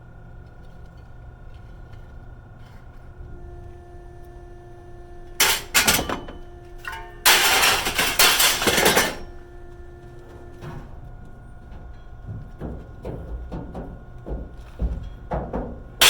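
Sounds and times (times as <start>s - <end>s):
scrap metal clattering and scraping: 5.4s - 16.0s.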